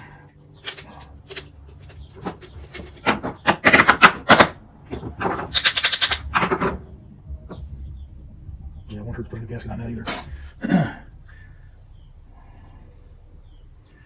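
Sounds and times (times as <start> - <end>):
hand tools clattering on metal parts: 0.6 - 6.8.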